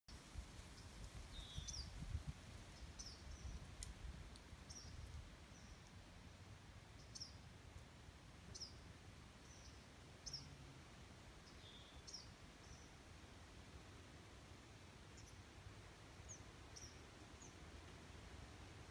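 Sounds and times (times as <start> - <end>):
birds chirping: 0.8 - 2.0, 8.5 - 10.6, 16.2 - 17.6.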